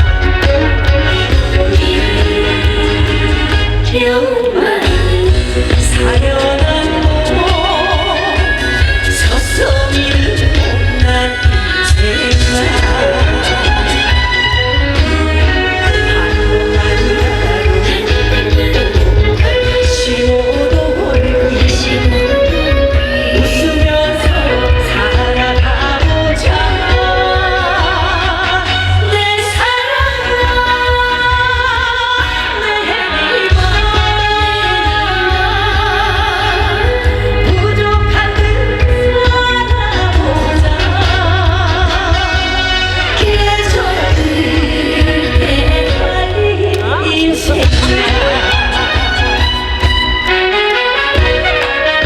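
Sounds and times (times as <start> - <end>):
person singing with vibrato: 0.0 - 52.0
heavy bass beat: 43.8 - 50.4.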